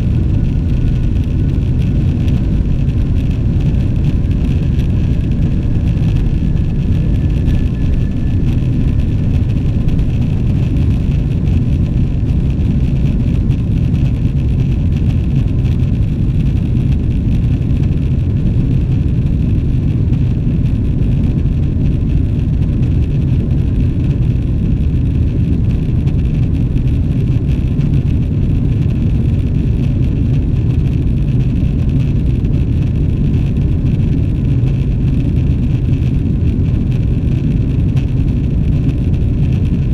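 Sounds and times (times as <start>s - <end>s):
jet engines roaring: 0.0s - 24.2s
air rushing along fuselage: 0.0s - 39.9s.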